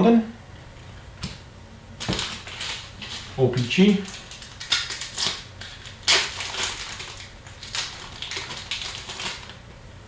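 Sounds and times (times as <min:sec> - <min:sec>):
trading cards rustling and snapping: 0:02.0 - 0:09.6.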